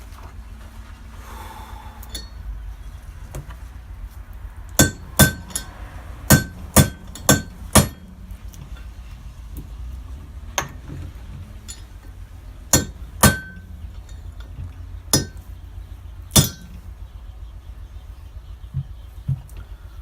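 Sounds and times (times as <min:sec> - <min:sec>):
hammer striking metal: 0:02.0 - 0:02.4, 0:04.8 - 0:08.3, 0:10.6 - 0:10.8, 0:12.7 - 0:14.3, 0:15.1 - 0:15.5, 0:16.3 - 0:16.8.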